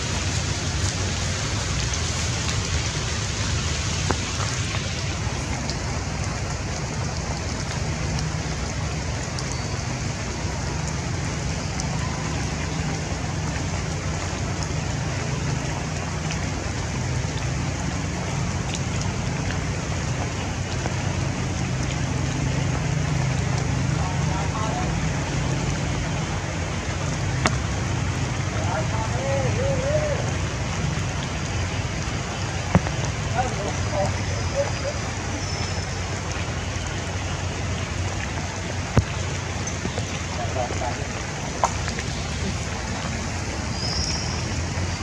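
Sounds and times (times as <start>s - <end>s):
steady rain: 0.0s - 45.0s.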